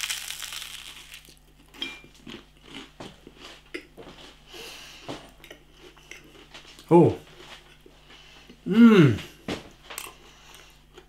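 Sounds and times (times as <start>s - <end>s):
crunchy bite into toast: 0.0s - 1.5s
chewing with mouth clicks: 0.0s - 3.9s.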